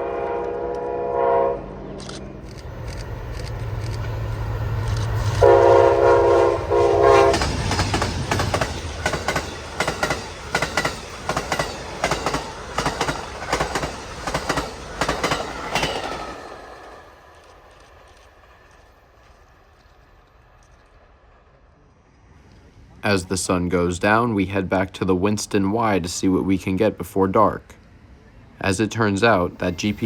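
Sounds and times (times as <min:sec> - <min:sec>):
train horn blasts: 0:00.0 - 0:02.0, 0:05.3 - 0:07.6
diesel locomotive engine rumble: 0:00.0 - 0:30.0
train wheels clicking over rail joints: 0:02.0 - 0:21.1.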